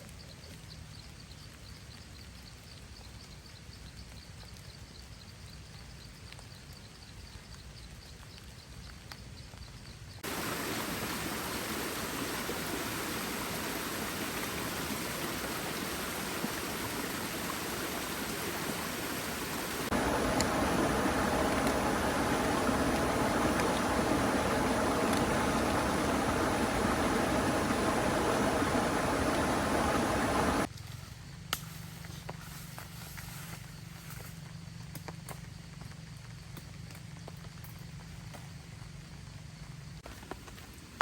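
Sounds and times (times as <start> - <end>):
faint high ticking: 10.2 - 30.7
heavy rain hissing: 10.2 - 30.7.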